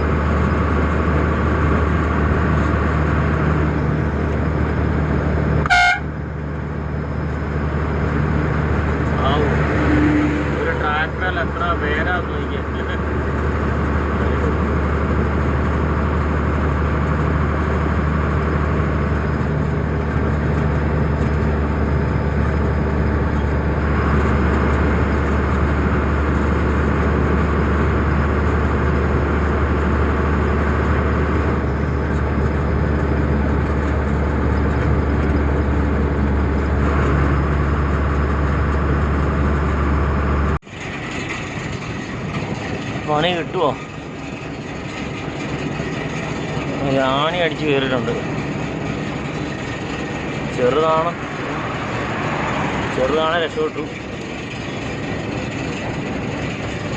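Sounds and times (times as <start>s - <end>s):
truck diesel engine drone: 0.0s - 56.9s.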